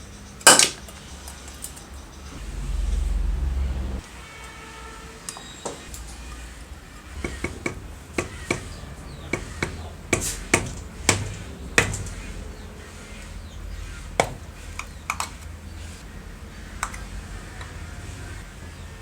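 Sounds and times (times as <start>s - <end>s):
low rumble: 2.1s - 4.2s.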